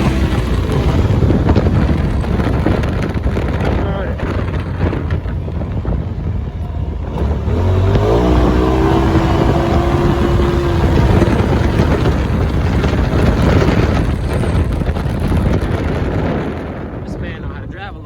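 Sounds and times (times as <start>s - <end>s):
steady rumbling noise: 0.0s - 18.0s
motor whine: 4.9s - 14.1s.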